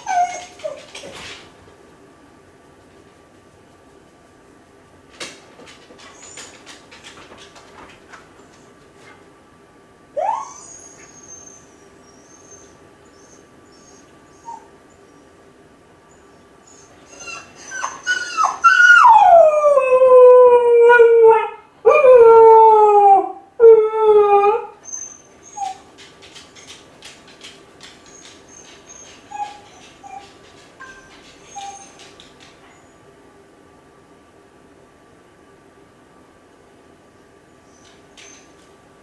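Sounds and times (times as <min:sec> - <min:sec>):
dog howling: 0:00.0 - 0:00.9, 0:16.7 - 0:25.8, 0:28.1 - 0:30.3, 0:30.9 - 0:32.0
dog yelping: 0:00.0 - 0:01.1, 0:10.2 - 0:14.7, 0:16.7 - 0:19.5, 0:24.3 - 0:25.9, 0:28.0 - 0:32.2
dog yipping: 0:00.0 - 0:01.1, 0:10.2 - 0:14.7, 0:16.7 - 0:19.2, 0:24.8 - 0:25.9, 0:28.0 - 0:32.2.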